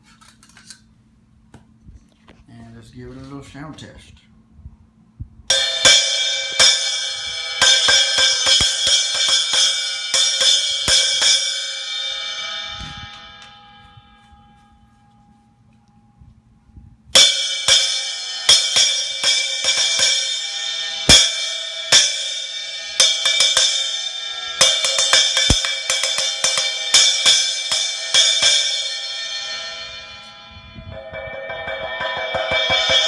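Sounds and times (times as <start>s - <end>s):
splash cymbal hits: 5.5s - 14.5s, 17.2s - 33.0s.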